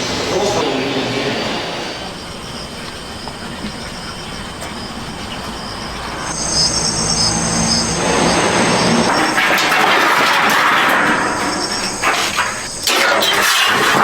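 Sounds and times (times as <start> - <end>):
factory machinery running: 0.0 - 3.5
high-pitched metallic squeal: 5.6 - 14.0.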